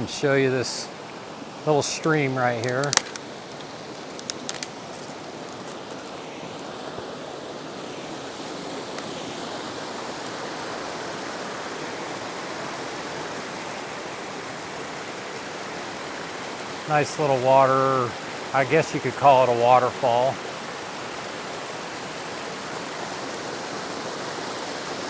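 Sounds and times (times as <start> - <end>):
stream rushing over small waterfall: 0.0 - 25.0.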